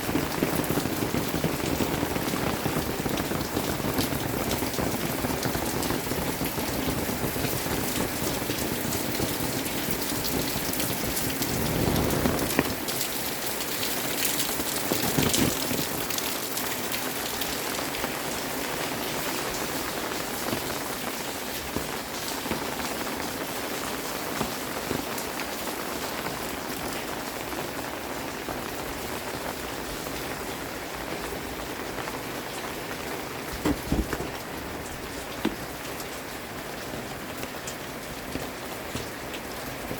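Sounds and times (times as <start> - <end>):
steady rain falling: 0.0 - 39.9
short knocks: 33.5 - 34.7.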